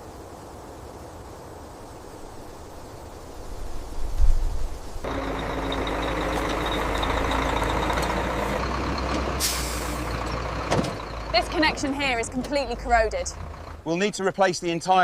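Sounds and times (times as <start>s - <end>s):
heavy truck engine running: 5.0s - 13.9s
air brake hiss: 9.4s - 10.1s.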